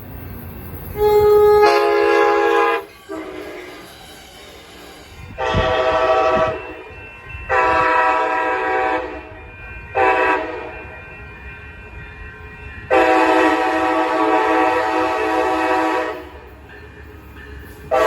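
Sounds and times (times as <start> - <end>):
train rumbling past: 0.0 - 18.0
locomotive air horn blasts: 1.0 - 3.8, 5.4 - 6.8, 7.5 - 9.3, 10.0 - 10.7, 12.9 - 16.3.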